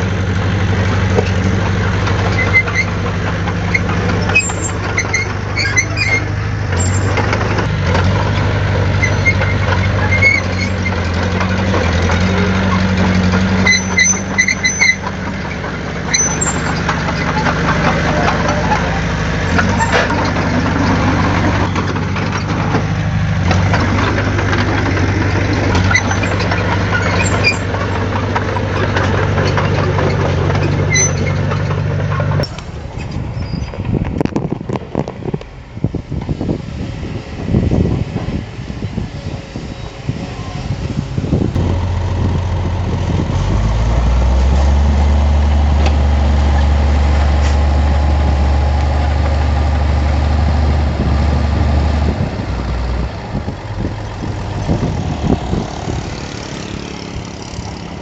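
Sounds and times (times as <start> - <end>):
heavy diesel engine running: 0.0 - 58.0
short high squeaks: 3.8 - 7.2, 9.0 - 11.2, 13.6 - 15.2, 16.1 - 17.5, 25.7 - 28.0, 29.5 - 33.8.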